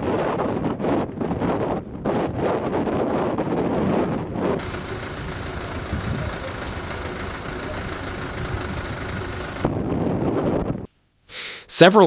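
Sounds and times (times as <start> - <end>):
wind noise on microphone: 0.0 - 10.9
vehicle engine humming: 4.5 - 9.9.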